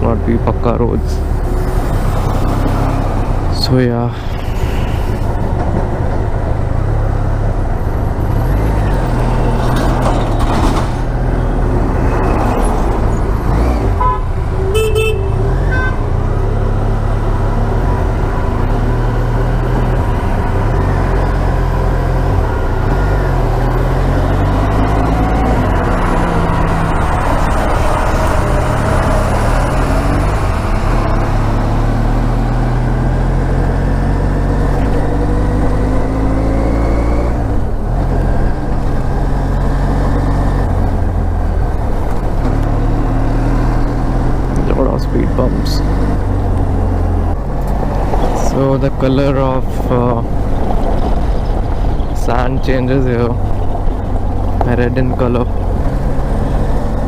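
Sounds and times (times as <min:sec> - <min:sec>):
vehicle horn honking: 0:14.0 - 0:16.2
wind noise: 0:49.6 - 0:57.0.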